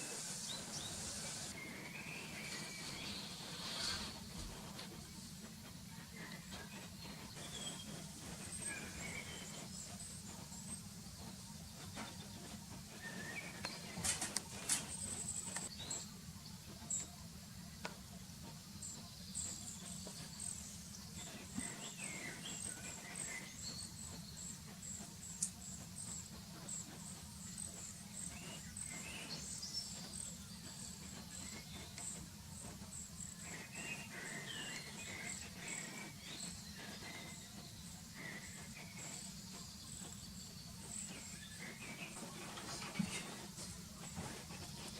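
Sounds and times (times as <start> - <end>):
steady low hum: 0.0 - 44.9
lower bird chirps: 6.2 - 17.2, 18.8 - 44.9.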